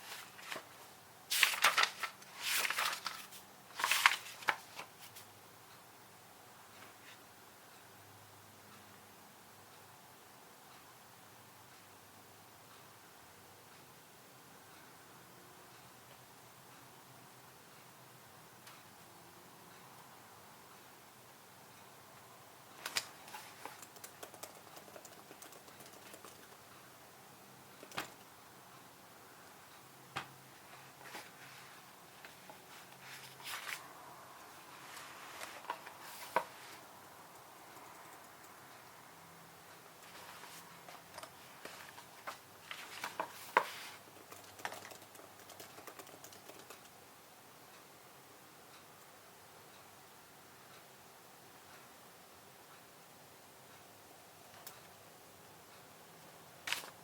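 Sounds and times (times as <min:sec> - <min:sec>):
computer keyboard typing: 0:22.8 - 0:26.7, 0:27.8 - 0:28.3, 0:37.3 - 0:38.6, 0:44.1 - 0:47.0.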